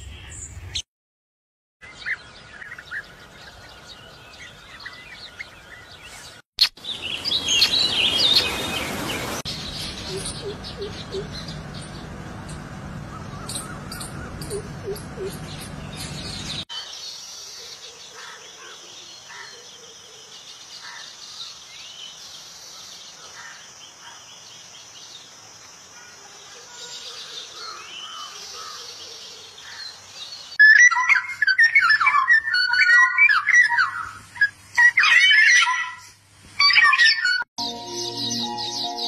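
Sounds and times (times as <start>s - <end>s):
small birds chirping: 1.8s - 37.4s.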